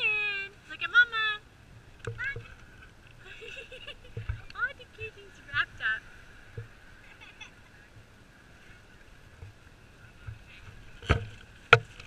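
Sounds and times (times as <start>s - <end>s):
wind and surf hiss: 0.0s - 12.0s
sharp knocks: 2.0s - 2.6s, 11.0s - 12.0s.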